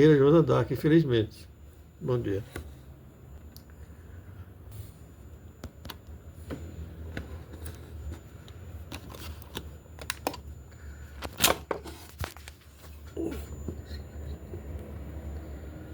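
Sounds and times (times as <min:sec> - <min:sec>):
faint low hum: 0:00.0 - 0:15.9.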